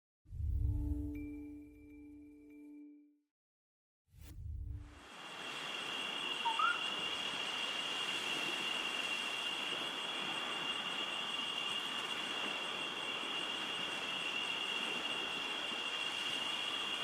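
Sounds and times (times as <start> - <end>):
insects trilling: 5.3 - 17.0
bird call: 6.4 - 7.1.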